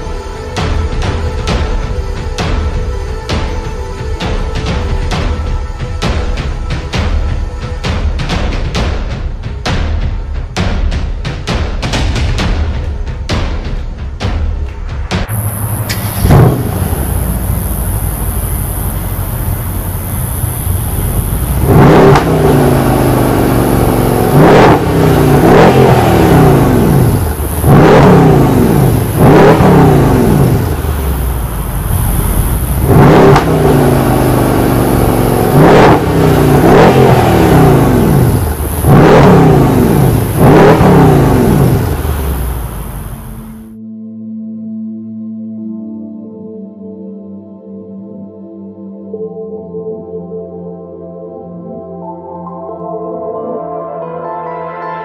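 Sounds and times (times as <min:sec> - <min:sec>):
car engine revving: 0:15.3 - 0:43.8.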